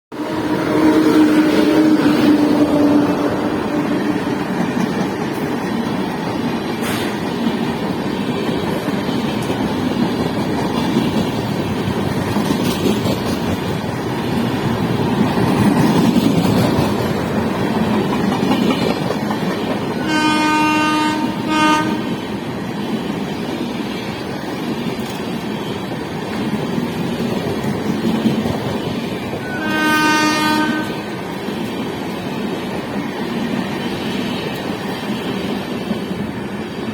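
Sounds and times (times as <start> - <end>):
locomotive horn: 0.1 - 4.4, 20.0 - 22.2, 29.4 - 31.1
train rumbling and clattering on rails: 0.1 - 36.9.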